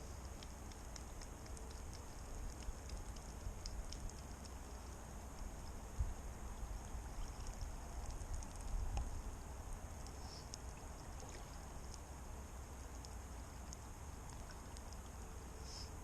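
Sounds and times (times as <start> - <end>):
lake water: 0.0 - 16.0
light ticks: 0.2 - 5.8, 7.4 - 9.1, 10.0 - 12.1, 12.8 - 15.9.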